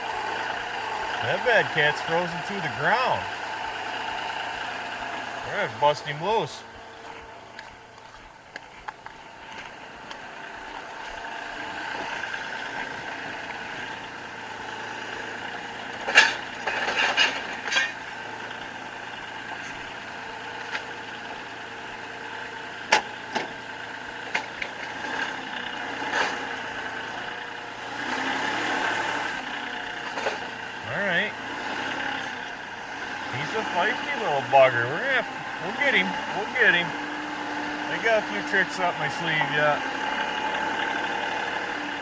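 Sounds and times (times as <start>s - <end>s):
tractor diesel engine running: 0.0s - 42.0s
metal clanks and knocks: 16.0s - 18.1s.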